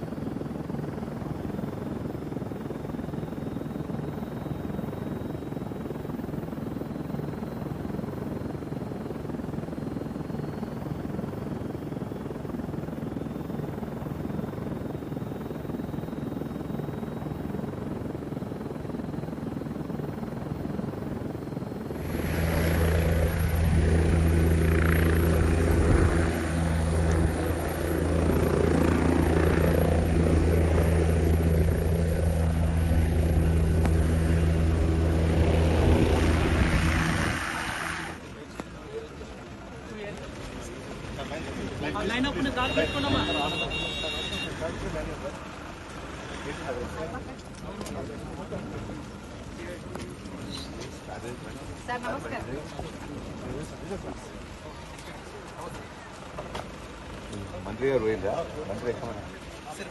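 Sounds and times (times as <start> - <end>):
steady low hum: 0.0 - 38.3
helicopter drone: 0.0 - 59.9.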